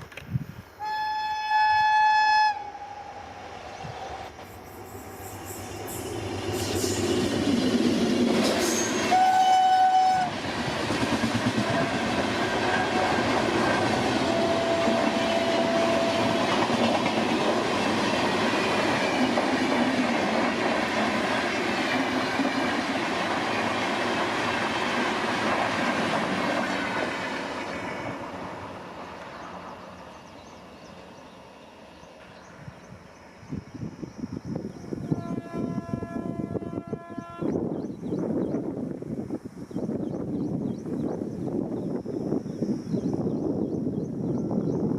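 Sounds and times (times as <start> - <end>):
train horn blast: 0.8 - 3.3, 8.7 - 10.4, 11.6 - 13.4, 14.2 - 16.8, 35.0 - 37.6.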